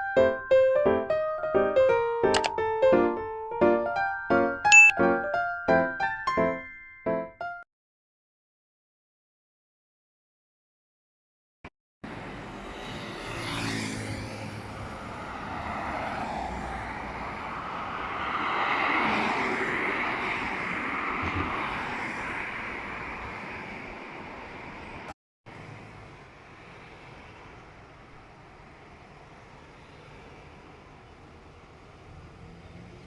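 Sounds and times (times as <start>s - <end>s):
passing vehicle rushing: 12.1s - 24.0s.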